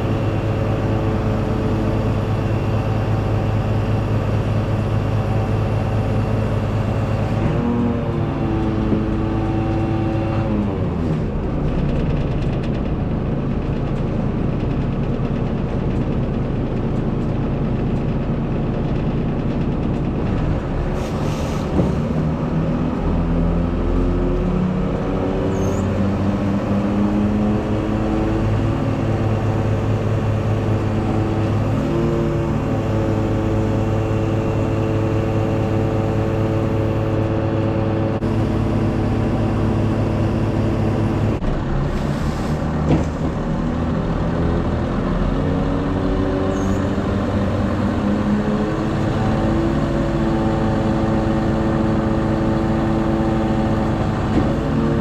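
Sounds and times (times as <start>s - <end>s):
lorry diesel engine revving: 20.0s - 55.0s.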